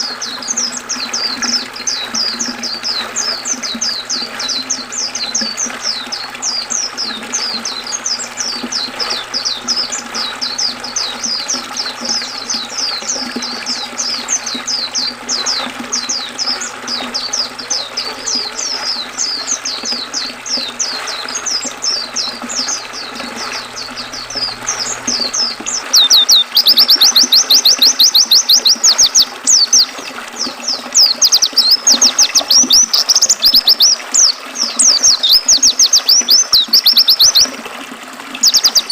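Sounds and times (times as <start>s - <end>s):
birds chirping: 0.0s - 37.6s, 38.2s - 38.9s
rattling bird trill: 16.2s - 29.8s.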